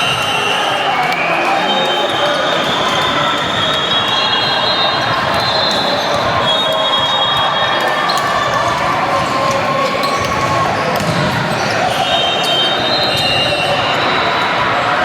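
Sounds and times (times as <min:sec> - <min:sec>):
many voices echoing: 0:00.0 - 0:15.0
ball hits and bounces: 0:10.2 - 0:11.6.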